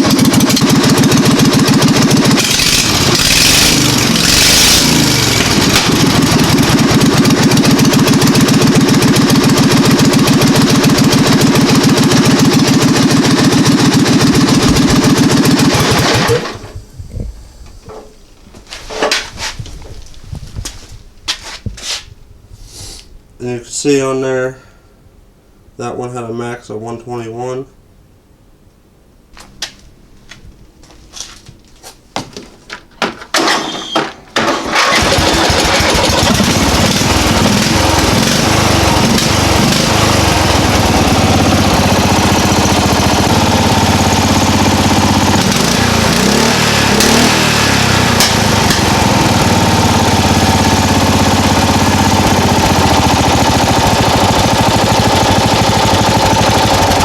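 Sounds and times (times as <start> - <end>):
lawn mower engine running loud: 0.0 - 16.9, 33.4 - 57.0
lawn mower engine sputtering: 0.0 - 18.2, 33.0 - 57.0.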